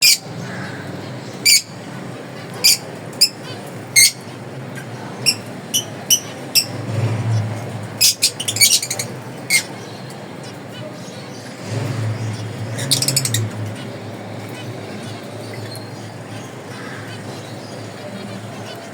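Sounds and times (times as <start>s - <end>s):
finches chirping: 0.0s - 18.9s
steady low hum: 11.0s - 18.6s.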